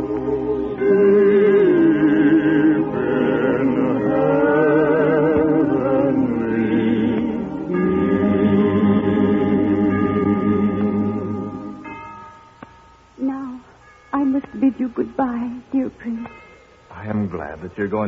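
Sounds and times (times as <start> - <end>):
choir singing: 0.0 - 12.0.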